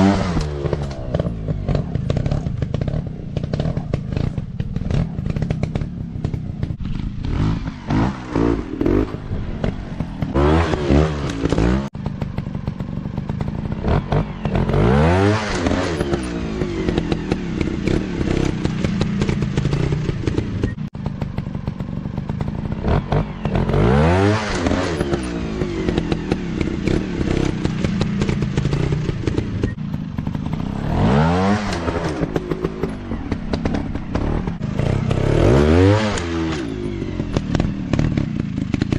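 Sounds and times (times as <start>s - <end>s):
dirt bike engines revving: 0.0s - 38.9s.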